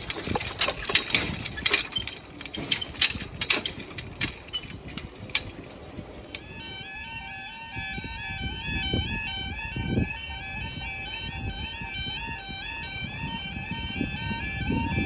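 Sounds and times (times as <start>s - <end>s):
metallic clicks and knocks: 0.0s - 6.5s
low mechanical hum: 0.0s - 15.0s.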